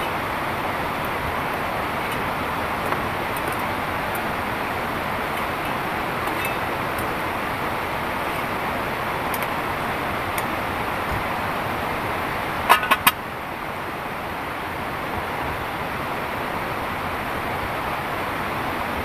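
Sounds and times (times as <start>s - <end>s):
heavy rain falling: 0.0s - 13.9s.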